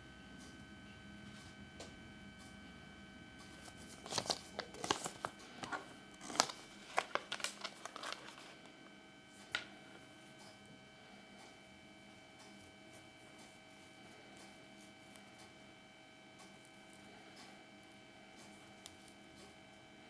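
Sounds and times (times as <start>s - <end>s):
faint steady hum: 0.0s - 20.0s
foil wrapper crinkling and tearing: 3.7s - 8.8s.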